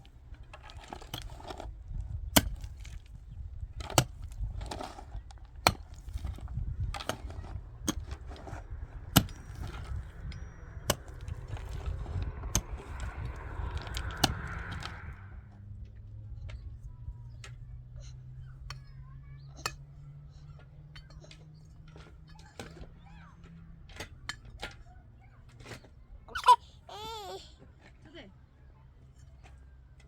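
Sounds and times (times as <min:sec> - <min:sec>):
low rumble: 0:05.8 - 0:17.2.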